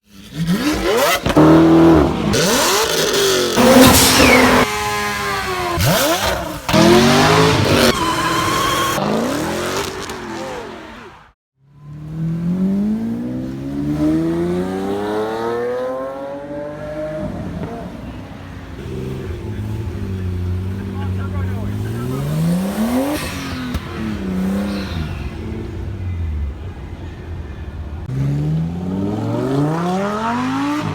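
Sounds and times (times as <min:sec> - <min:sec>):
car engines revving and accelerating: 0:00.0 - 0:30.9.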